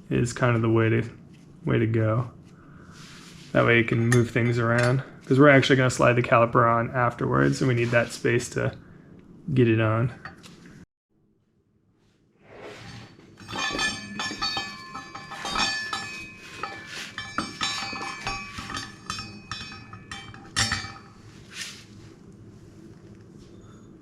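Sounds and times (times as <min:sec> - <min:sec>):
metal parts clinking and rattling: 0:13.4 - 0:21.2.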